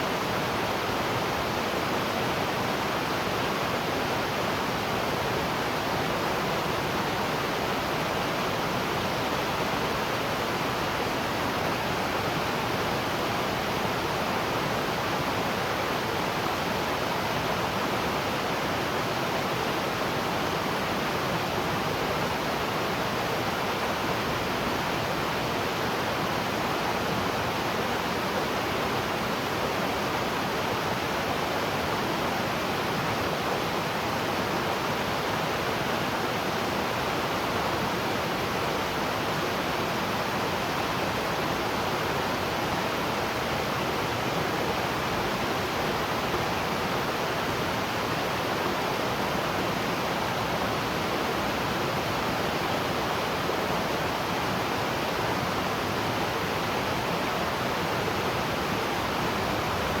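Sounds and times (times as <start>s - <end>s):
waterfall rushing: 30.4s - 60.0s.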